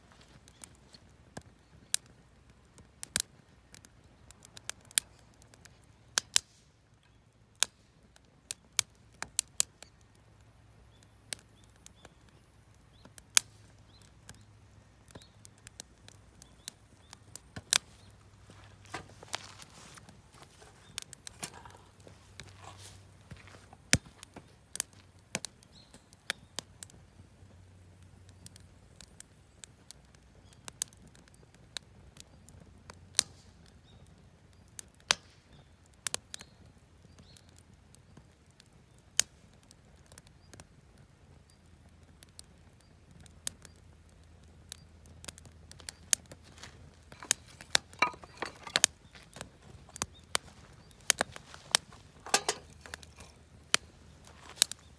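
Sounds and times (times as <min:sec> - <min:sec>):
campfire crackling and popping: 0:00.0 - 0:54.9.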